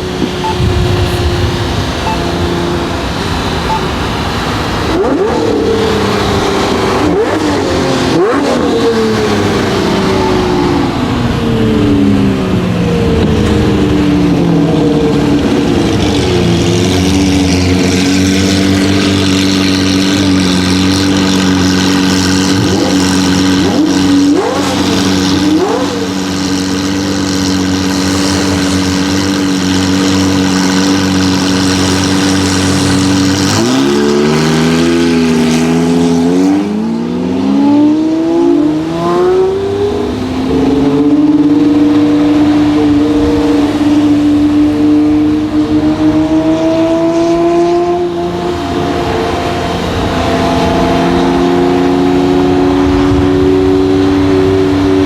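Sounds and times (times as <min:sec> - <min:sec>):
car engine: 0:00.0 - 0:55.0.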